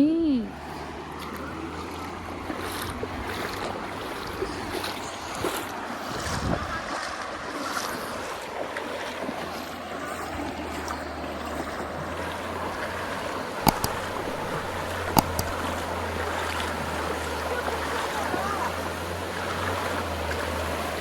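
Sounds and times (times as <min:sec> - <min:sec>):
flowing water: 0:00.3 - 0:21.0
wind noise: 0:04.3 - 0:07.0
sharp clicks: 0:13.6 - 0:15.9.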